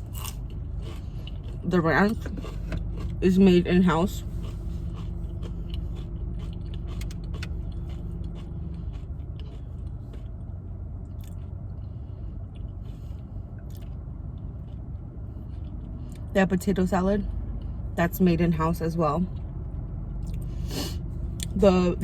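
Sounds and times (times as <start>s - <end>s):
crunchy bites and mouth clicks: 0.0s - 11.9s, 12.5s - 16.3s
person chewing food: 0.0s - 16.3s, 19.3s - 21.6s
steady low hum: 0.0s - 22.0s.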